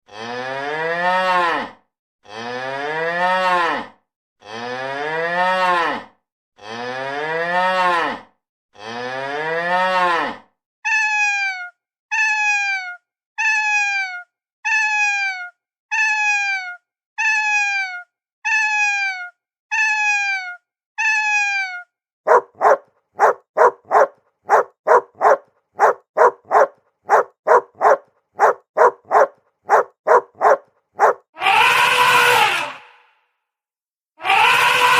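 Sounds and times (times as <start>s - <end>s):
cow mooing: 0.1s - 1.7s
dog barking: 22.3s - 31.2s.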